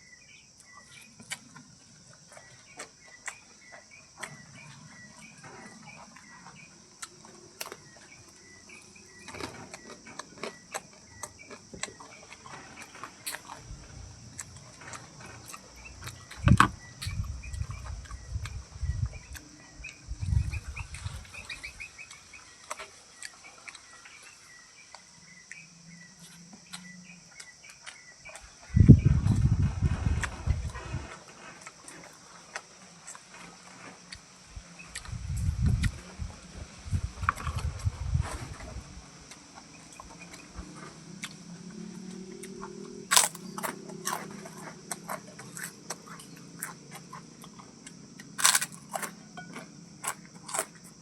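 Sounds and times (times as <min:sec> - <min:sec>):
high insect drone: 0:00.0 - 0:51.0
low thumps and rumbles: 0:13.5 - 0:21.5, 0:28.7 - 0:31.1, 0:34.6 - 0:39.1.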